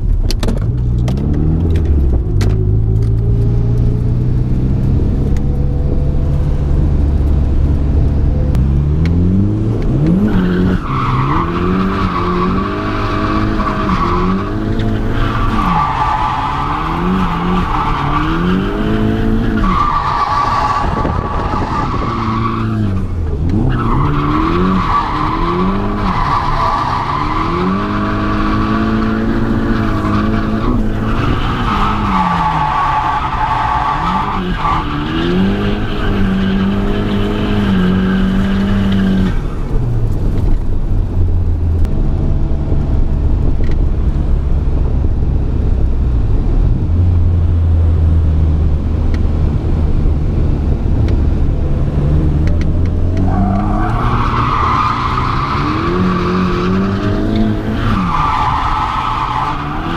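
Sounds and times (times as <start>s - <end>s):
car engine revving: 0.8s - 44.6s, 45.7s - 59.9s
tyre squeal: 53.2s - 59.9s.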